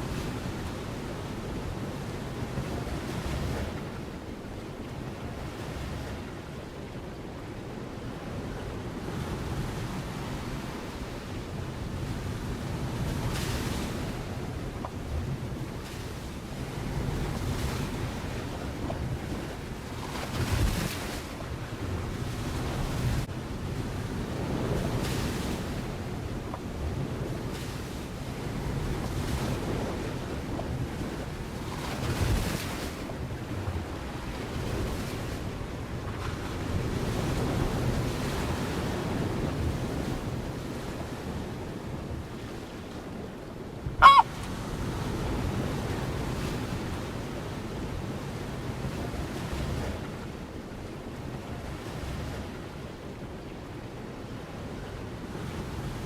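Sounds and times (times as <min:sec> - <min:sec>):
wind on microphone: 0:05.0 - 0:50.2
surf rushing: 0:43.8 - 0:44.3
loud bird call: 0:44.0 - 0:44.3.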